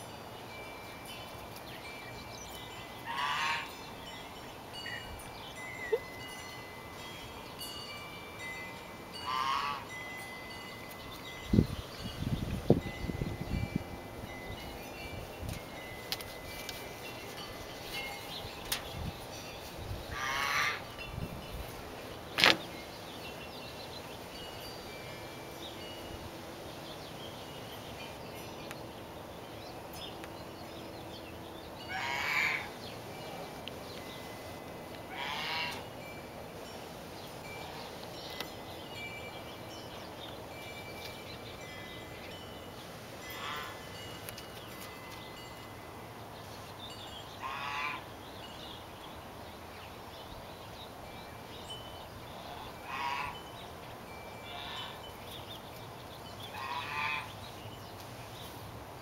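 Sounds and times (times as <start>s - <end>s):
bird calling: 1.8s - 6.7s, 20.1s - 21.1s, 34.9s - 36.0s.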